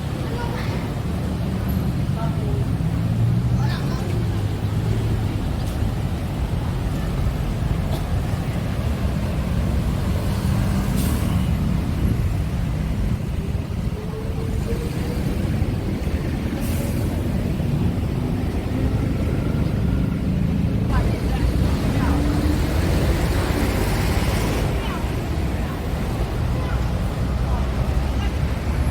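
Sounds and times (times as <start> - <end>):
road traffic rumble: 0.0 - 28.9.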